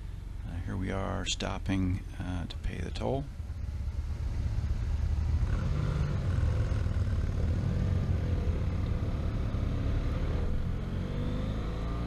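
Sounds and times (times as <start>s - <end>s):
motorcycle engine rumbling: 3.3s - 11.5s.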